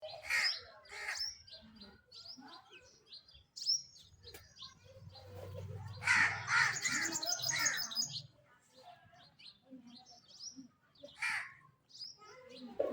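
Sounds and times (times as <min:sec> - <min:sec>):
birds chirping: 0:03.2 - 0:08.3.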